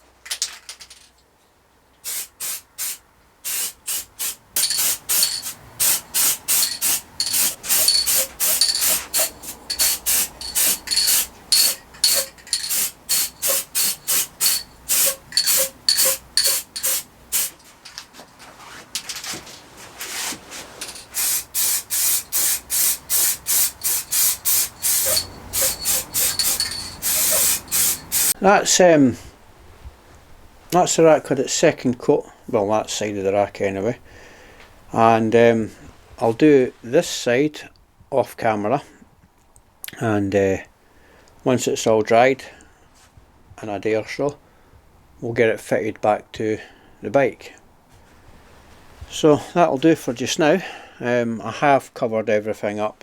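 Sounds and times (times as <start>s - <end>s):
spray paint can spraying: 2.0s - 17.6s, 21.0s - 28.4s.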